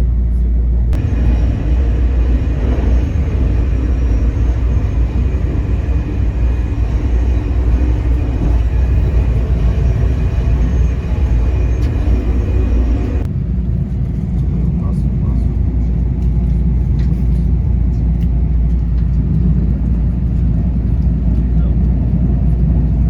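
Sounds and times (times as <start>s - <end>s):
wheels rumbling on rail: 0.0s - 23.0s
faint steady tones: 0.9s - 13.3s.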